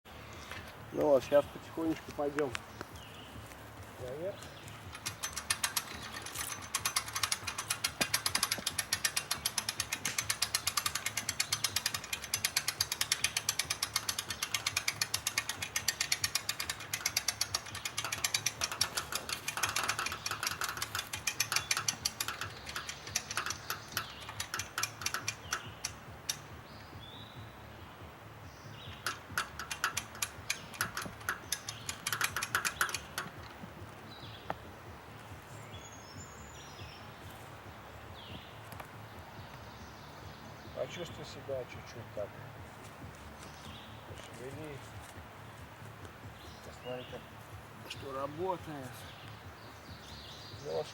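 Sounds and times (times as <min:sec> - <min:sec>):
ratchet clicking rapidly: 0:04.5 - 0:26.6, 0:28.8 - 0:33.8.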